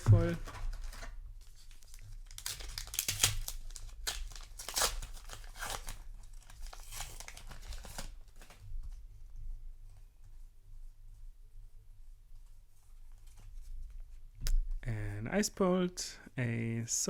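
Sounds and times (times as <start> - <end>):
paper wrapper tearing and crinkling: 0.1 - 8.6.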